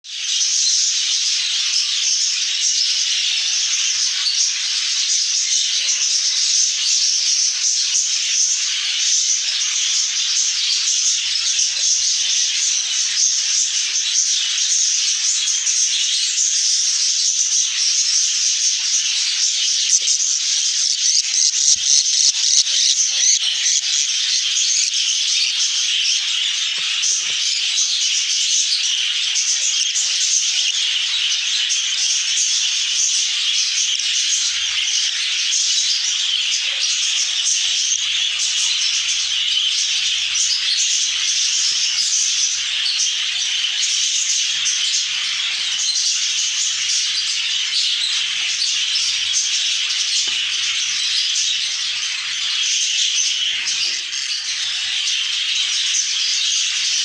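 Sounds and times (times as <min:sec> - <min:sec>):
budgerigars chattering: 0:00.1 - 0:57.0.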